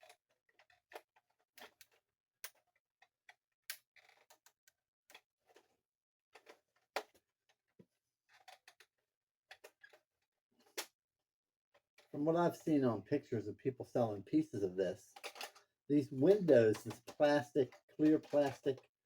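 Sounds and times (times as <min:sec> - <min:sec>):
plastic toy pieces clicking: 0:15.2 - 0:15.6, 0:16.3 - 0:18.9.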